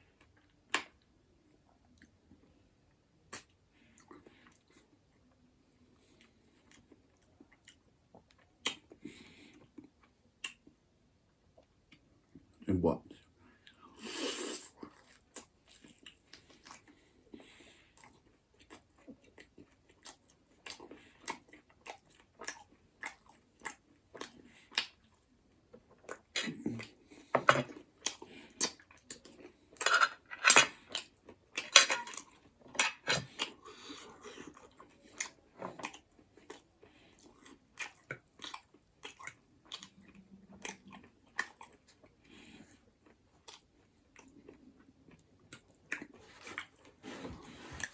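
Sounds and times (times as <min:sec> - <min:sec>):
wet chewing and crunching: 0:14.7 - 0:47.9.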